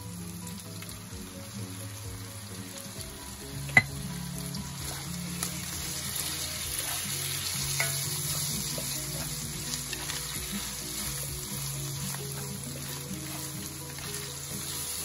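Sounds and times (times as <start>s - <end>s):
chicken sizzling in oil: 0.0s - 15.0s
spatula stirring in pan: 4.7s - 15.0s.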